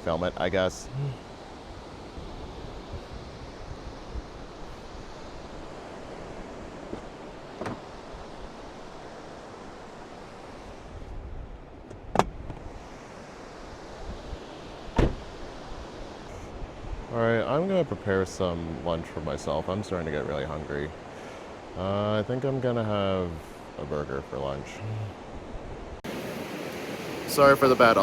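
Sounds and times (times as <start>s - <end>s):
wind: 0.0s - 28.0s
surf: 26.0s - 28.0s.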